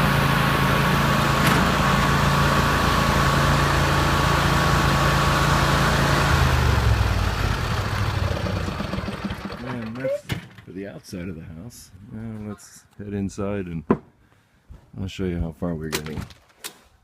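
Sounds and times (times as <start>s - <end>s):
lawn mower engine running: 0.0s - 10.2s.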